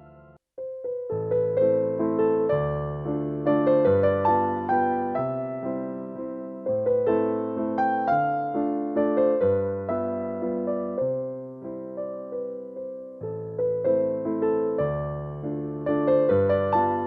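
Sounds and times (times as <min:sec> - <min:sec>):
gentle slow piano melody: 0:00.0 - 0:17.0.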